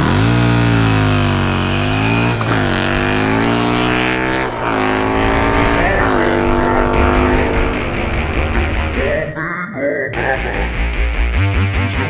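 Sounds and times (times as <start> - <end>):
motorcycle engine revving: 0.0 - 9.4.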